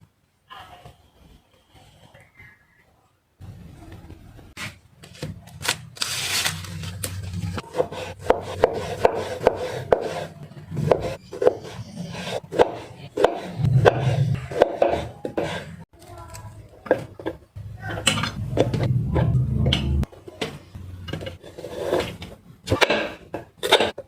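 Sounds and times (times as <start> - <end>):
knife scraping rustle: 5.6 - 8.2
knife chopping on wooden board: 7.7 - 15.6.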